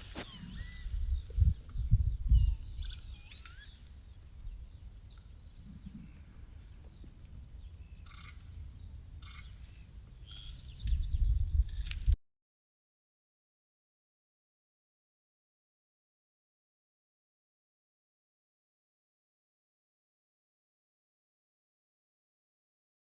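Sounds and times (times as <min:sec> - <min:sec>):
wind buffeting microphone: 0:00.0 - 0:03.3, 0:10.7 - 0:12.2
small birds chirping: 0:00.0 - 0:12.2.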